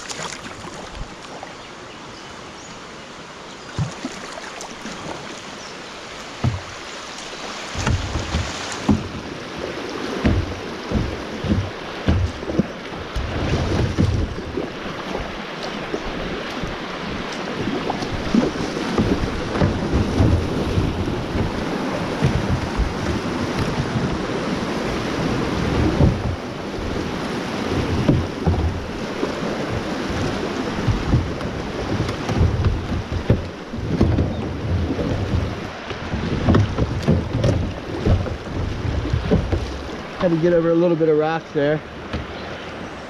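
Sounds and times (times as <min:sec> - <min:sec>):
creek water rushing: 0:00.0 - 0:43.0
wind buffeting microphone: 0:06.4 - 0:40.7.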